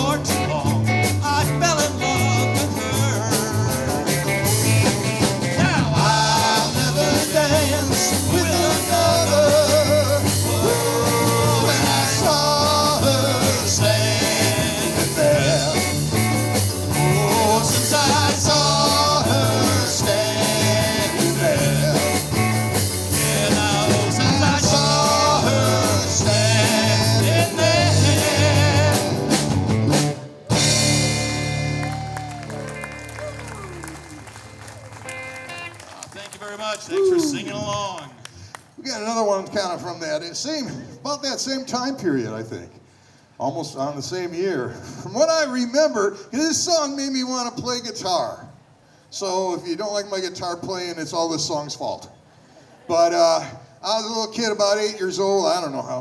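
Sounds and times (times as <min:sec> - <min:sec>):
live rock band playing: 0:00.0 - 0:36.1.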